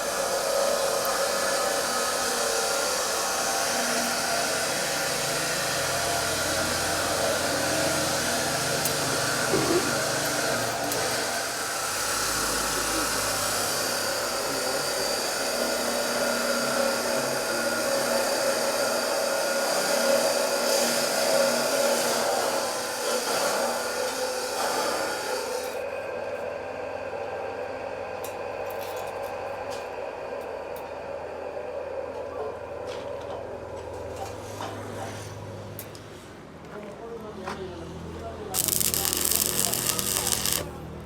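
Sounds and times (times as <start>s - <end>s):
metal grinding rasp: 38.6s - 40.7s.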